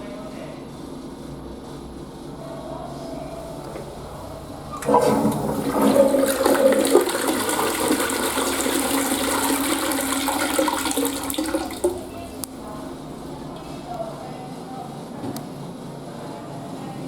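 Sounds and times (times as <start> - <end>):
toilet flushing: 3.8 - 12.4.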